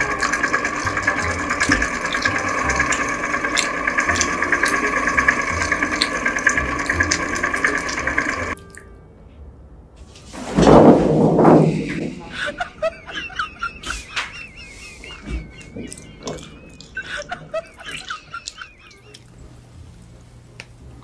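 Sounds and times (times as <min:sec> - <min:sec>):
fondue fountain motor whirring: 0:00.0 - 0:08.6, 0:12.4 - 0:20.0.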